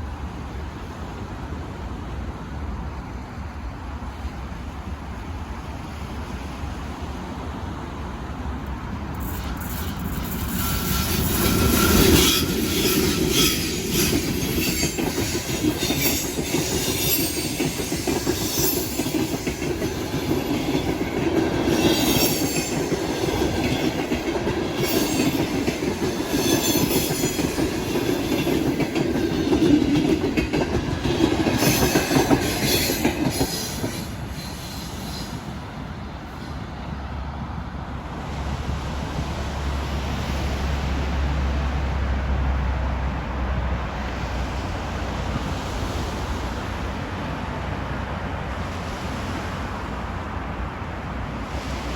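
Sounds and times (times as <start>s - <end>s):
train wheels clattering: 8.7s - 35.7s
train wheel squeal: 9.1s - 36.9s.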